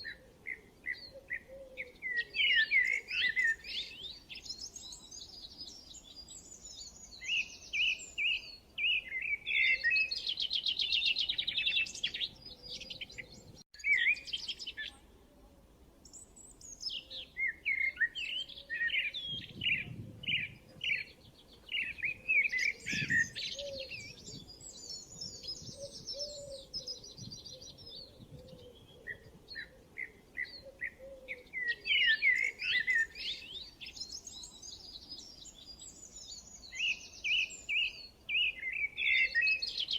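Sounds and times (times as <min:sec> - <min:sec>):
songbirds chirping and singing: 0:00.0 - 0:15.1, 0:16.0 - 0:39.9.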